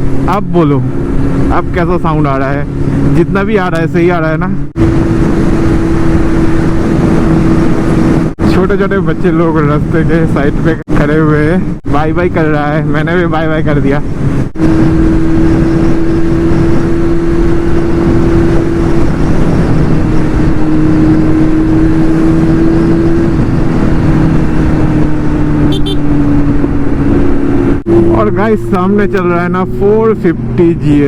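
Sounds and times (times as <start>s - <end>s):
motorcycle engine cruising: 0.0s - 31.0s
wind and road rush: 0.0s - 31.0s.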